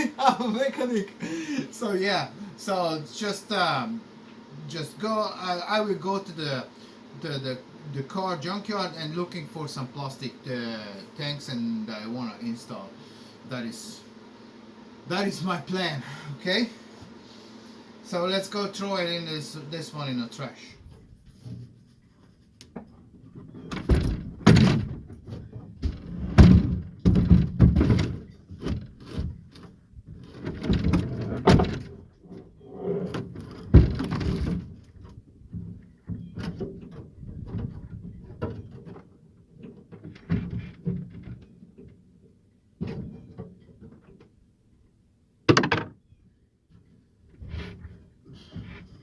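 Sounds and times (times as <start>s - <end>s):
metal tank thumps and bangs: 23.6s - 29.0s, 45.5s - 45.9s.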